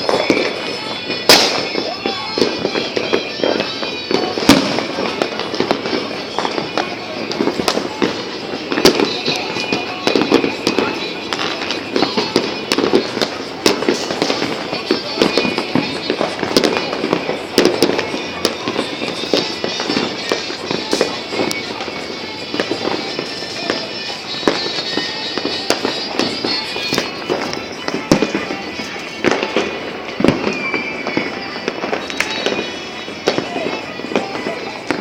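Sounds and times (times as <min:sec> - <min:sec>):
firecracker bangs: 0:00.0 - 0:35.0
fireworks crackling: 0:00.0 - 0:35.0.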